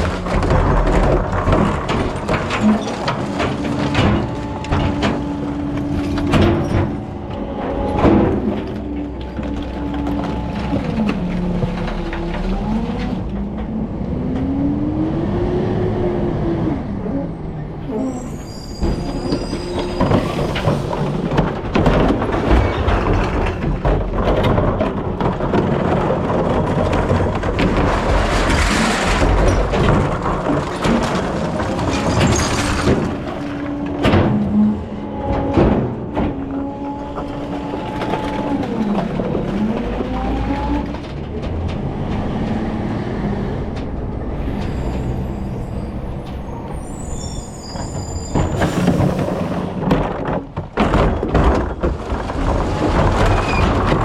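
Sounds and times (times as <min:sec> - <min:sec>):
heavy rattling and clanking: 0:00.0 - 0:14.6, 0:16.8 - 0:54.0
recycling truck running: 0:00.0 - 0:54.0
high squealing tones: 0:17.8 - 0:20.6, 0:44.7 - 0:48.7.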